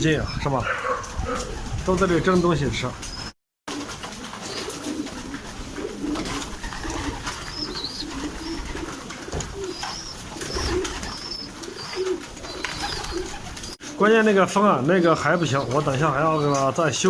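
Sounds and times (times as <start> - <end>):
strong wind rumbling: 0.0 - 3.0
pigeons cooing: 0.0 - 17.0.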